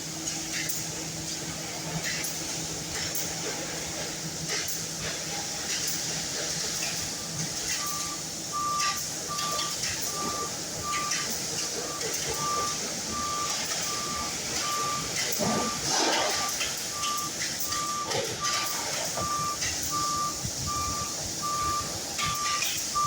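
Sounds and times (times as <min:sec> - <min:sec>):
reversing alarm beeping: 0:07.7 - 0:23.0.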